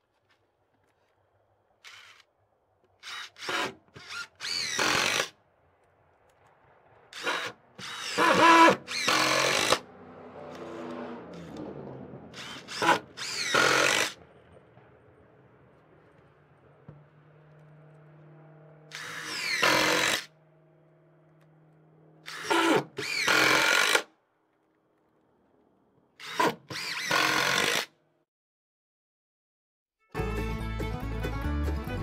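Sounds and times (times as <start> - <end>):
power drill spinning: 1.8 - 2.3, 2.9 - 5.4, 7.1 - 9.9, 10.5 - 14.2, 18.9 - 20.3, 22.2 - 24.1, 26.2 - 27.9.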